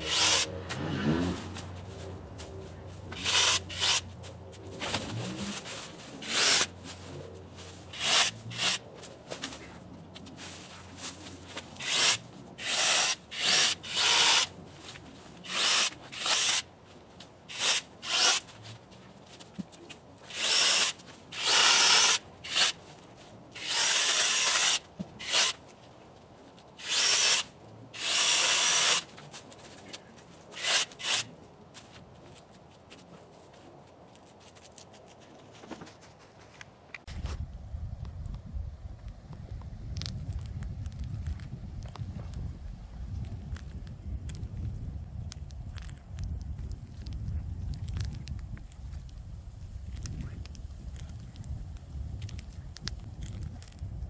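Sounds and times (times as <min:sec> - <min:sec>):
chainsaw cutting branches: 0:00.0 - 0:01.8, 0:03.1 - 0:04.1, 0:04.9 - 0:06.8, 0:07.9 - 0:08.8, 0:11.6 - 0:14.6, 0:15.4 - 0:16.7, 0:17.5 - 0:18.5, 0:20.2 - 0:22.8, 0:23.6 - 0:25.6, 0:26.8 - 0:29.2, 0:30.5 - 0:31.3.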